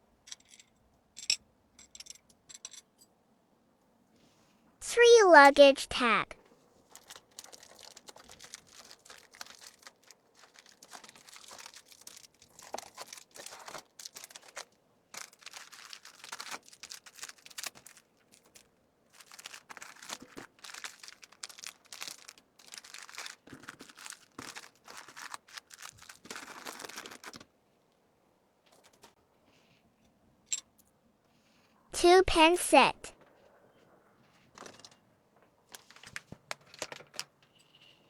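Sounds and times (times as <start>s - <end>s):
plastic packaging crinkling: 6.8s - 27.5s, 35.7s - 37.2s.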